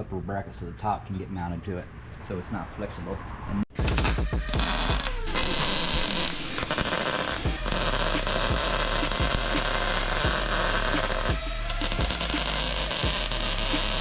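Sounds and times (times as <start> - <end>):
welder crackling hiss: 3.8 - 14.0.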